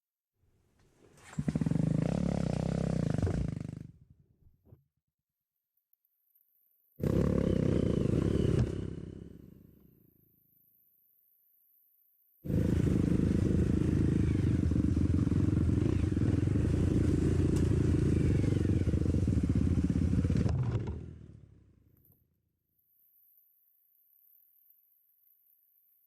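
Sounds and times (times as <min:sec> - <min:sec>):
dirt bike engine running: 0:07.0 - 0:09.6, 0:12.5 - 0:21.9.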